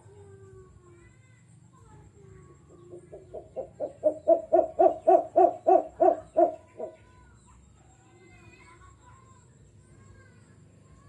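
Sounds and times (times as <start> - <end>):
bird low hoots: 2.8 - 7.0.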